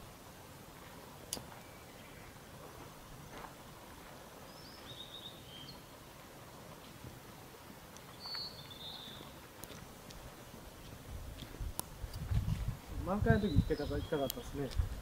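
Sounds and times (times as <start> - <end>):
small bird chirping: 4.5 - 5.9, 8.0 - 9.4, 13.3 - 14.8.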